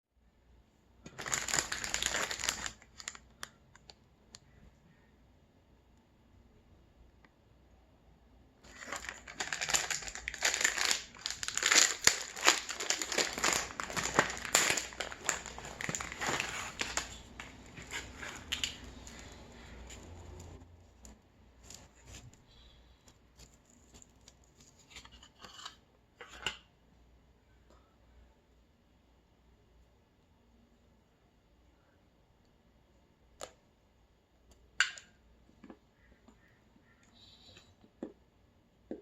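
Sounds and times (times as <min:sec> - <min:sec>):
wrapper crinkling and tearing: 0:01.1 - 0:03.9, 0:08.6 - 0:19.3.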